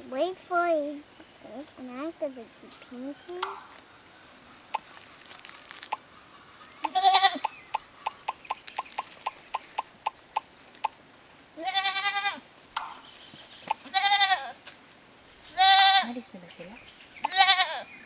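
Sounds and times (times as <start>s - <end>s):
goat bleating: 6.8s - 7.5s, 11.6s - 12.5s, 13.7s - 14.6s, 15.5s - 16.2s, 17.2s - 17.9s.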